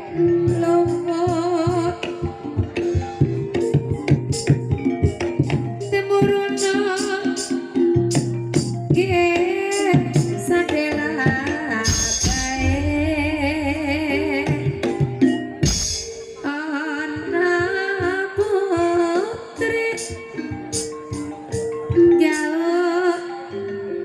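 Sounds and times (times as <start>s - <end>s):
woman singing: 0.0s - 2.6s, 5.8s - 8.2s, 8.9s - 15.2s, 16.4s - 20.6s, 22.1s - 24.0s
struck metallophones: 0.0s - 24.0s
drum: 0.2s - 16.6s
heavy low strikes: 12.3s - 14.6s.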